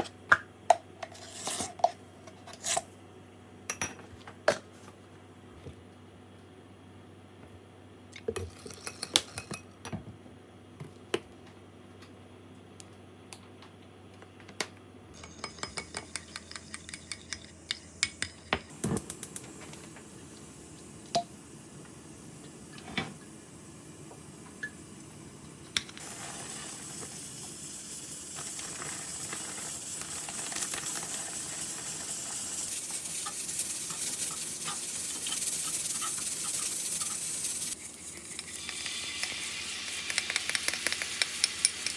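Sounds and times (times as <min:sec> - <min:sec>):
food sizzling in a pan: 0:25.9 - 0:41.9.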